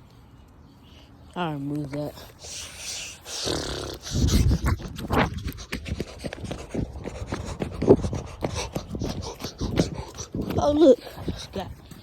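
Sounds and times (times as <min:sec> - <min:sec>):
dog panting: 0:01.9 - 0:12.0.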